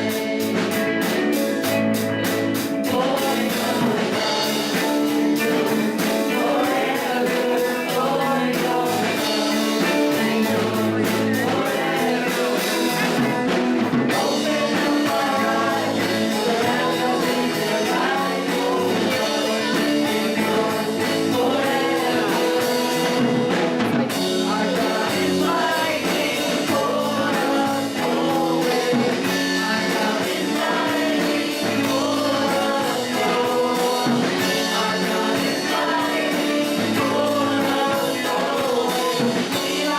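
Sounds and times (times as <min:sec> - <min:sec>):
person singing: 0:00.0 - 0:39.9
rock band guitar and drums: 0:00.0 - 0:39.9.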